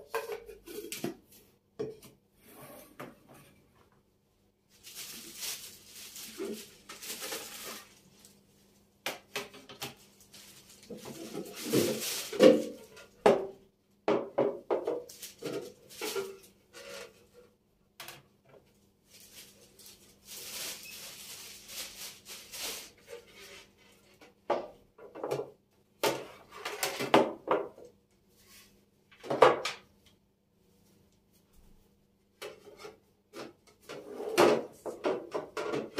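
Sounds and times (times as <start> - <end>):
containers knocking and clattering: 11.0 - 16.4, 34.3 - 35.9.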